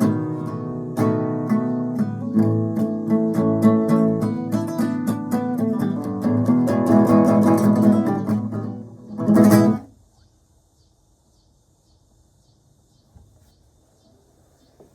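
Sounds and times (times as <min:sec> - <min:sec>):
acoustic guitar blues: 0:00.0 - 0:09.9.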